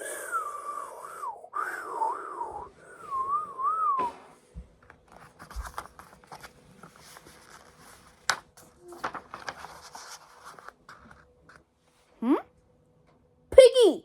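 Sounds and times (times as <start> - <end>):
person whistling: 0.0 - 4.4
faint rustles and light taps: 4.5 - 12.1.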